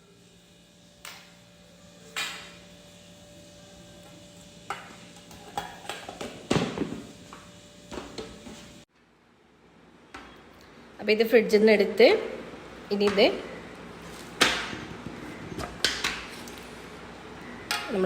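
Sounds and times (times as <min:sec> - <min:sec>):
faint steady hum: 0:00.0 - 0:18.0
containers and utensils clinking: 0:04.7 - 0:07.0.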